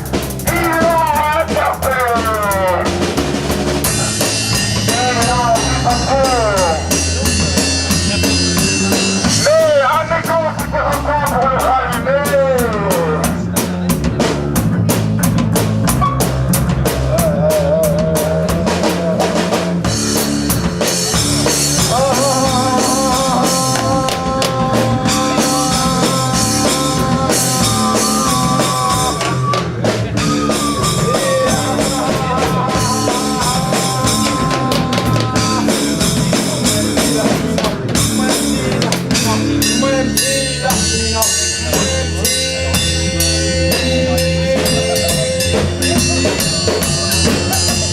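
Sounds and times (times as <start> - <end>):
bass line: 0.0 - 47.9
drum kit beat: 0.0 - 47.9
long held pitched notes: 15.9 - 37.0.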